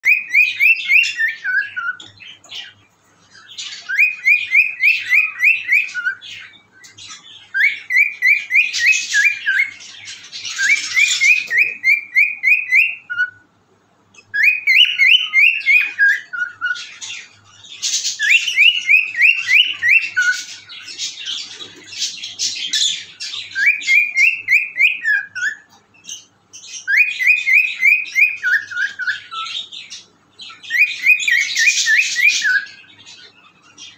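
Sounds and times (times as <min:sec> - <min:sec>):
cockatiel whistling: 0:00.0 - 0:02.7, 0:03.3 - 0:13.4, 0:14.3 - 0:17.2, 0:17.8 - 0:33.3
scratchy bird chatter: 0:14.7 - 0:33.9.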